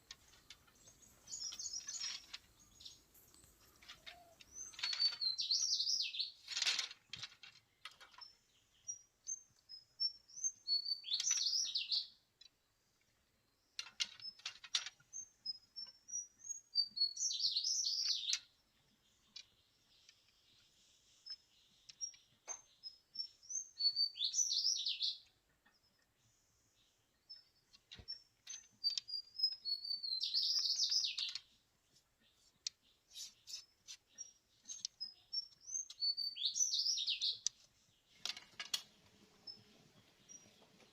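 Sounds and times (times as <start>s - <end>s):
thin whistled bird notes: 0.0s - 6.4s, 7.9s - 12.2s, 15.1s - 18.5s, 19.1s - 25.3s, 26.7s - 31.5s, 32.3s - 38.3s
songbird warbling: 23.5s - 25.3s, 28.8s - 31.4s, 33.1s - 37.5s.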